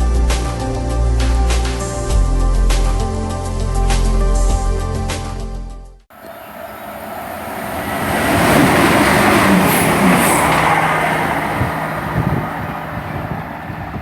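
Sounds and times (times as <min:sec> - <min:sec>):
diesel train passing: 0:06.1 - 0:14.0.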